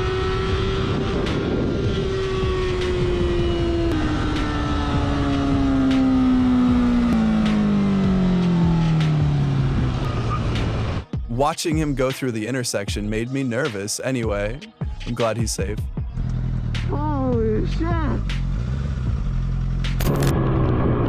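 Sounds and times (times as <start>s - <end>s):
motorcycle engine running: 0.0s - 11.0s, 15.7s - 21.0s
road and wind rumble: 0.0s - 11.2s, 15.9s - 21.0s.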